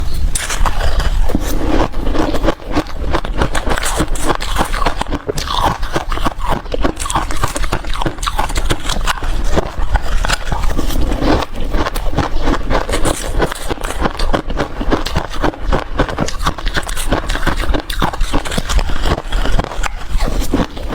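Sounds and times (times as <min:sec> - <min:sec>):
ice cubes being chewed: 0:00.0 - 0:20.9.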